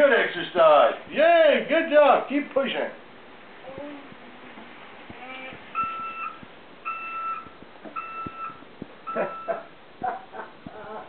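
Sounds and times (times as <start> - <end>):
child's voice: 3.6 - 5.7
electronic beeps: 5.7 - 9.7.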